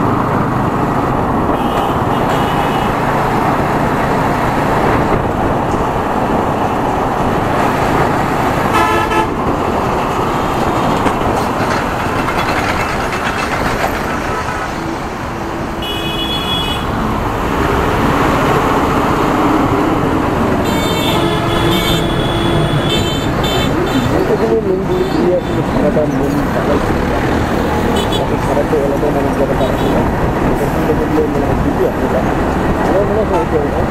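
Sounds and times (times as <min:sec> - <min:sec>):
motorcycle road and wind noise: 0:00.0 - 0:33.9
vehicle horns honking: 0:01.5 - 0:03.0, 0:08.7 - 0:09.4, 0:15.8 - 0:17.0, 0:20.6 - 0:24.3, 0:27.9 - 0:28.4.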